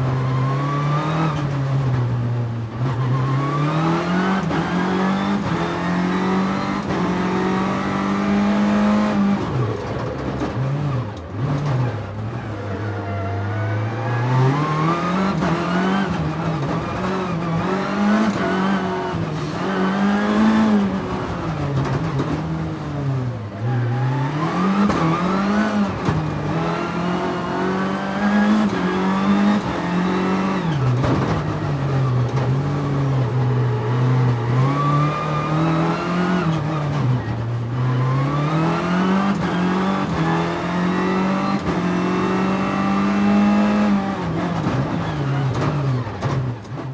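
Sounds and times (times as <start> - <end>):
car engine revving: 0.0 - 46.5.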